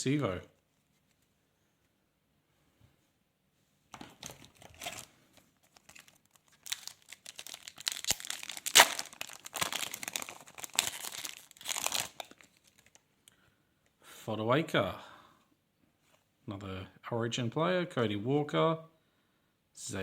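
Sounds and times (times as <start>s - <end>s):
card pack wrapper tearing and crinkling: 4.2s - 13.0s.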